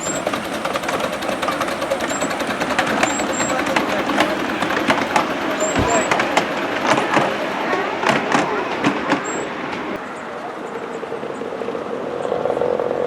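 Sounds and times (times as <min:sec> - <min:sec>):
miniature locomotive rumbling: 0:00.0 - 0:10.4
clicks and knocks: 0:00.1 - 0:10.0.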